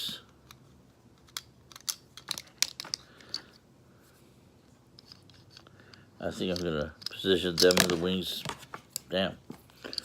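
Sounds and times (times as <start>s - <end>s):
plastic toy parts clicking: 1.2s - 3.5s.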